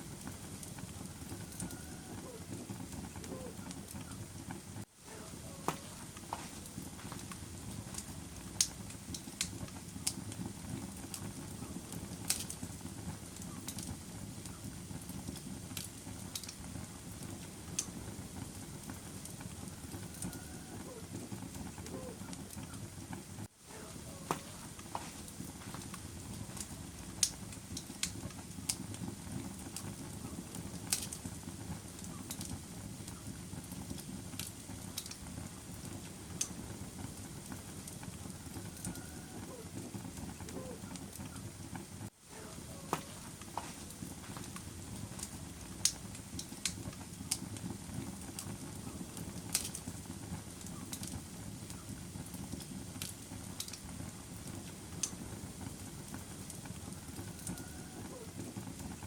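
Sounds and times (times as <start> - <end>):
fire crackling and popping: 0.0 - 59.0
fire flames rushing: 0.0 - 59.0.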